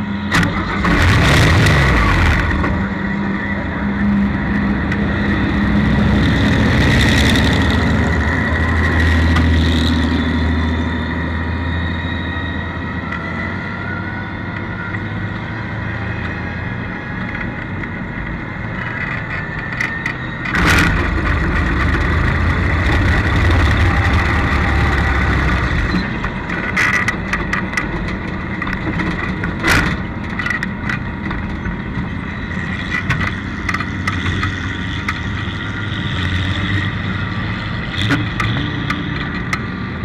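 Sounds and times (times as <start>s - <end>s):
car engine running: 0.3s - 10.9s, 20.5s - 26.2s
sudden loud rush of noise: 0.4s - 10.7s, 20.6s - 26.1s.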